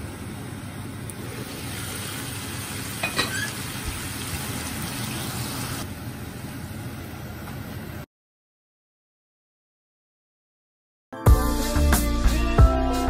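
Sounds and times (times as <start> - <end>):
prawns sizzling in a frying pan: 1.3 - 5.8.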